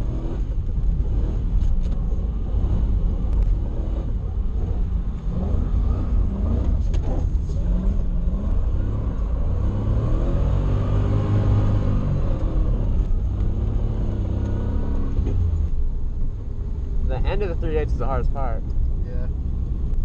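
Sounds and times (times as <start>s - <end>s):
car engine revving in a drift: 0.0s - 15.7s.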